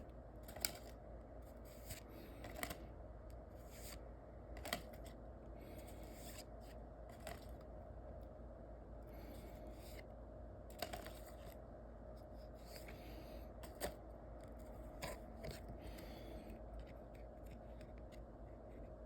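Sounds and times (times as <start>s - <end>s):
cards rustling and sliding: 0.4s - 7.7s, 9.1s - 10.1s, 10.7s - 19.0s.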